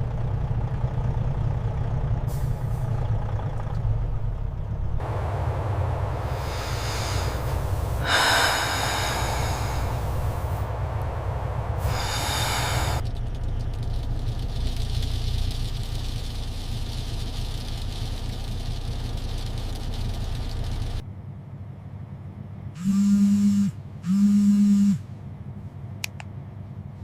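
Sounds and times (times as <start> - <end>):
truck engine rumbling: 0.0 - 27.0
air brake hissing: 6.2 - 13.0.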